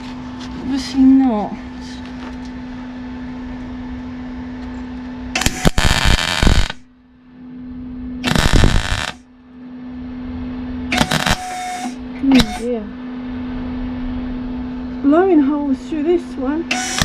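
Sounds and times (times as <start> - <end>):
steady hum: 0.0 - 17.0
welding arc crackling: 5.4 - 6.9, 8.2 - 9.2, 10.9 - 12.7, 16.7 - 17.0.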